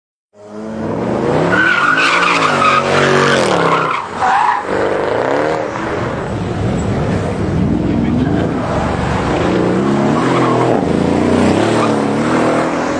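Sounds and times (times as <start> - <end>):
car engine revving: 0.4 - 12.9
tyres squealing: 1.5 - 4.9.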